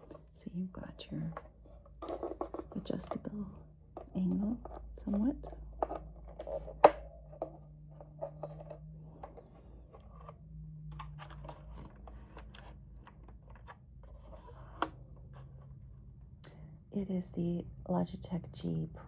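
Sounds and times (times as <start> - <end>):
hands handling plastic keyboard: 1.2 - 15.7.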